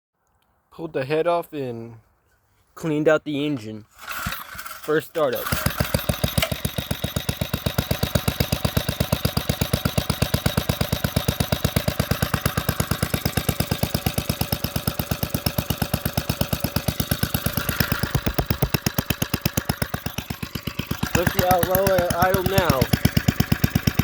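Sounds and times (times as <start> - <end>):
single-cylinder engine running: 4.1 - 24.0.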